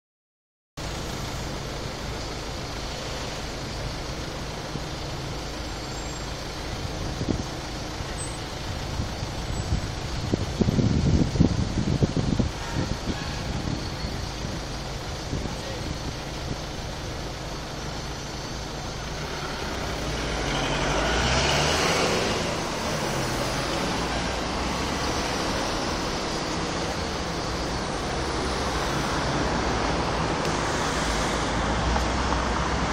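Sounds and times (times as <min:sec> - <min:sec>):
road traffic passing: 0:00.8 - 0:32.9
vehicle passing loudly: 0:19.0 - 0:32.9.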